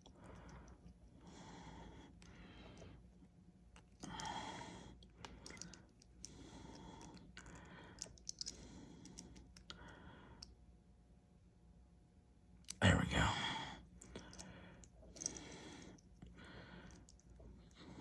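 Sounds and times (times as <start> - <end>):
person breathing: 4.0 - 10.5, 12.9 - 18.0.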